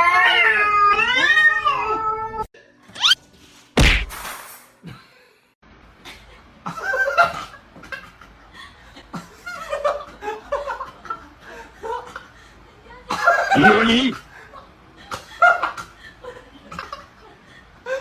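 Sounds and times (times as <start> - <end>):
sharp whack: 3.8 - 4.5.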